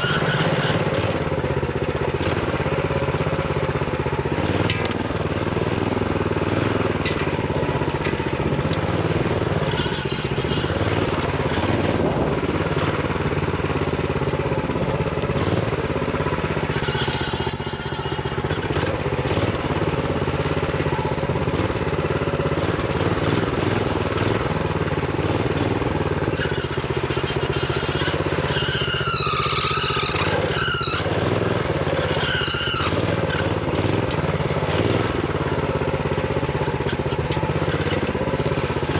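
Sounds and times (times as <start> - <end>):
wavering high squeals: 0.0 - 1.0, 9.5 - 11.7, 16.6 - 18.7, 26.0 - 33.6
minibike engine running: 0.0 - 38.9.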